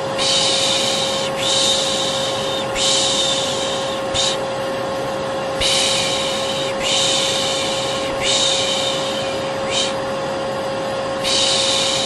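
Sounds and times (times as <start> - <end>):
vacuum cleaner running: 0.0 - 12.0
person shushing: 0.2 - 4.4, 5.6 - 10.0, 11.2 - 12.0.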